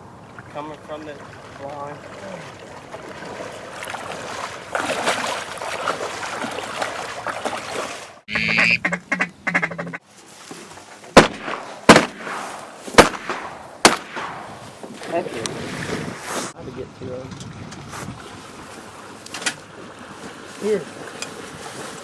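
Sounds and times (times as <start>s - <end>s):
ducks quacking: 8.3s - 10.0s
rapid duck calling: 8.3s - 10.0s
shotgun blasts: 11.2s - 14.7s.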